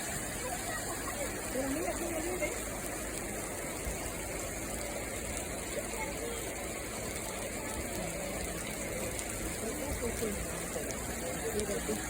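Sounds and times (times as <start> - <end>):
faint voices: 0.0 - 12.0
heavy rain rushing: 0.0 - 12.0.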